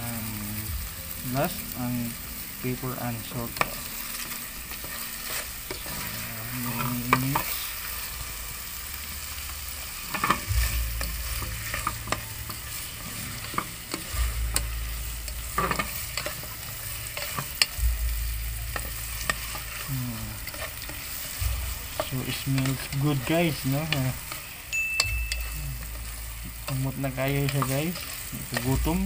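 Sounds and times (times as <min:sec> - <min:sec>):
low rumble: 0:00.0 - 0:27.6
food sizzling in pan: 0:00.0 - 0:29.0
spatula scraping and clicking on pan: 0:10.0 - 0:17.8.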